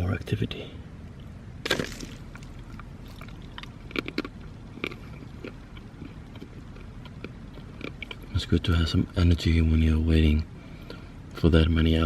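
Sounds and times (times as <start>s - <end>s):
person chewing snack: 1.6s - 8.3s.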